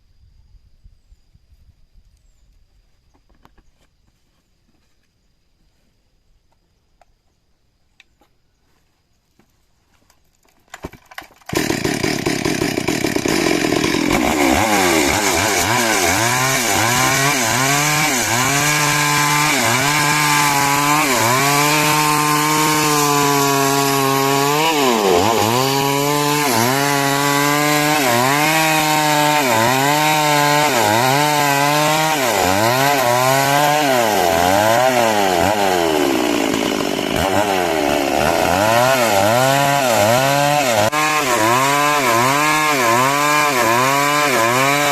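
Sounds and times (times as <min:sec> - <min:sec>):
chainsaw cutting timber: 0:10.7 - 0:44.9.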